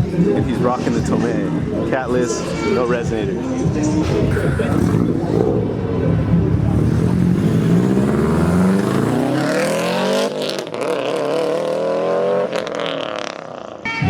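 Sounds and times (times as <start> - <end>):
car engine accelerating: 3.4 - 13.8.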